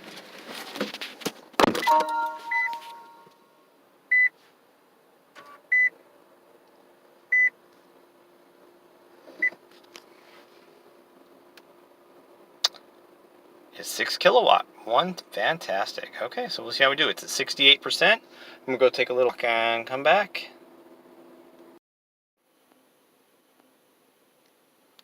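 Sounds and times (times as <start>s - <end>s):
faint steady hum: 1.6s - 21.8s
short high beeps: 1.8s - 3.3s
short ringing chime: 1.8s - 3.4s.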